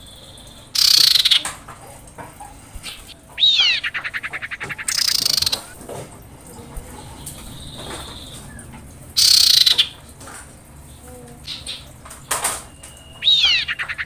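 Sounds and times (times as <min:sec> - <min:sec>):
bird whistle and trill: 0:00.0 - 0:01.5, 0:02.8 - 0:05.6, 0:07.4 - 0:10.0, 0:11.5 - 0:14.0
bird harsh raspy call: 0:00.0 - 0:01.6, 0:02.4 - 0:05.8, 0:07.1 - 0:10.0, 0:11.4 - 0:12.0, 0:12.7 - 0:14.0.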